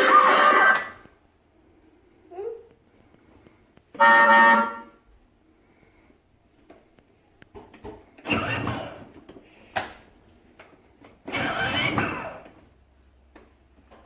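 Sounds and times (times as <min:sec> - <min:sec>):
toy car electronic engine sound: 0:00.0 - 0:01.0, 0:08.3 - 0:09.0, 0:11.3 - 0:12.4.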